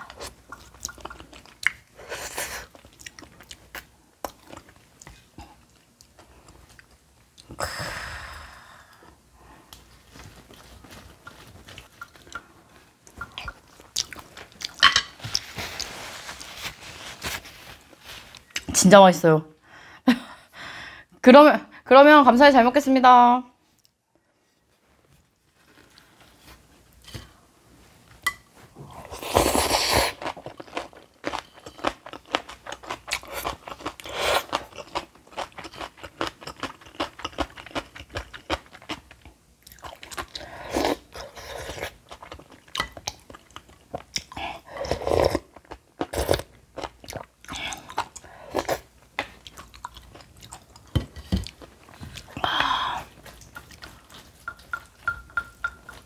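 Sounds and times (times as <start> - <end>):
person chewing and crunching food: 0.0 - 7.6, 8.9 - 18.8, 28.6 - 56.0.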